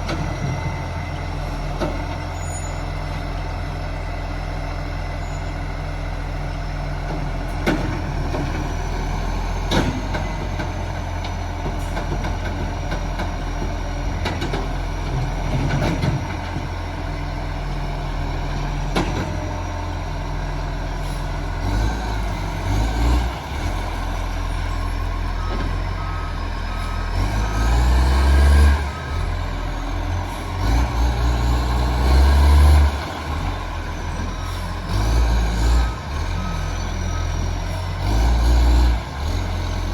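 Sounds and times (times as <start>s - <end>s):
reversing beeper: 2.3s - 3.1s, 5.1s - 5.8s, 23.2s - 39.9s
garbage truck engine revving: 17.6s - 39.9s.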